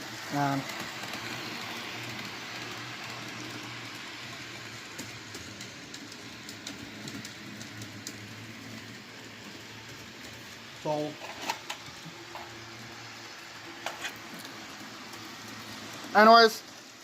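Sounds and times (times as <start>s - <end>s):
model train whirring rumble: 0.0s - 17.0s
wheels clicking on rails: 0.0s - 17.0s.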